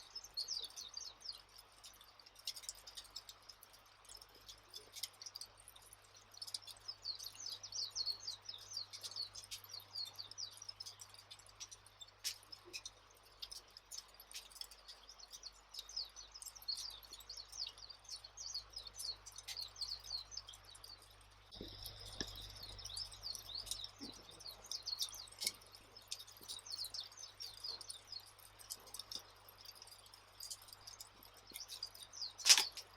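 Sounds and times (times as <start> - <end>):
campfire crackling pops: 32.4 - 32.9.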